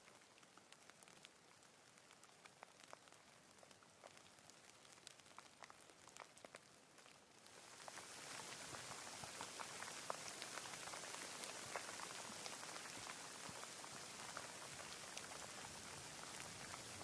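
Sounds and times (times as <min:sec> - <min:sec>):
raindrops striking close by: 0:00.0 - 0:17.0
steady rainfall: 0:00.0 - 0:17.0.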